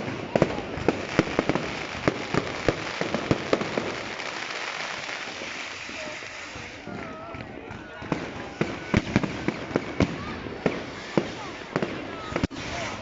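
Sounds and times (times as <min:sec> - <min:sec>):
fireworks bangs: 0:00.0 - 0:13.0
steady hiss: 0:01.0 - 0:06.9.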